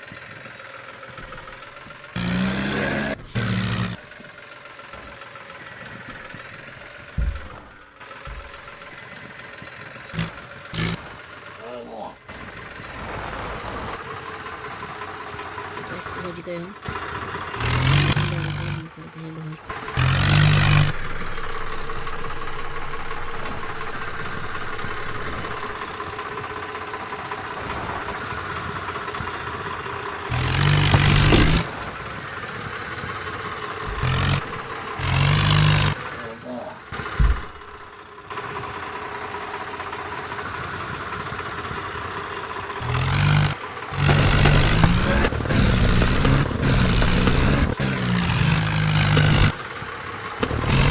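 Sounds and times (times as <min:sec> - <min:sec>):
tractor engine running: 0:00.0 - 0:50.9
low thumps: 0:07.1 - 0:08.8, 0:37.1 - 0:37.9.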